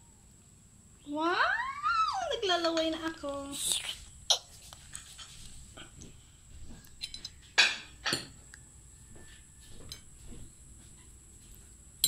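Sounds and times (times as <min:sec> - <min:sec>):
dishes and utensils clinking: 0:04.9 - 0:05.5, 0:06.9 - 0:08.5, 0:09.7 - 0:10.3.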